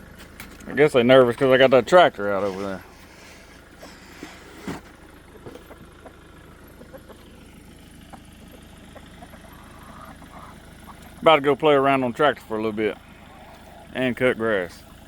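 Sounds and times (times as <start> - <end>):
chickens clucking: 0.6 - 15.0.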